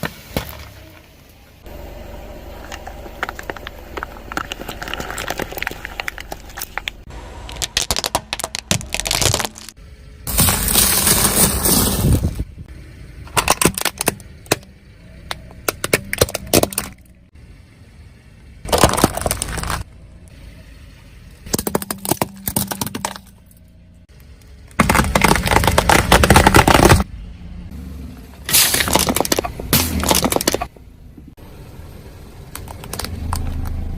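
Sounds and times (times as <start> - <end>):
objects crunching under tyre: 0.0 - 12.5, 13.3 - 17.2, 18.6 - 20.0, 21.4 - 23.6, 24.4 - 27.1, 28.3 - 30.7, 32.4 - 33.9.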